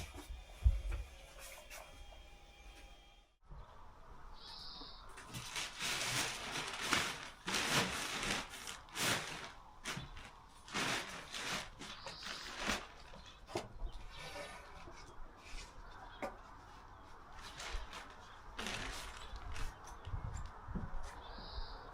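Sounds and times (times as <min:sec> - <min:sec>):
wood scraping on wood: 0:05.2 - 0:16.4.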